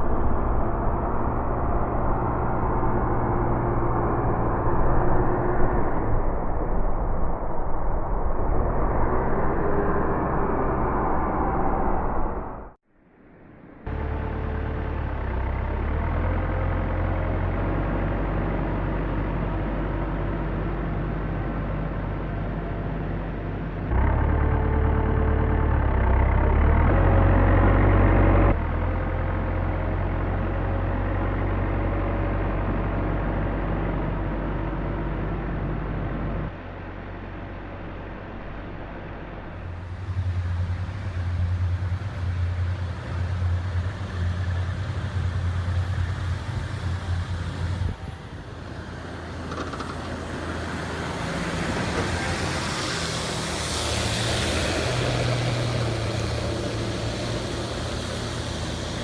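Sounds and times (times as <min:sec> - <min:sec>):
heavy machinery engines droning: 0:00.0 - 0:59.0
rising hiss: 0:50.4 - 0:59.0.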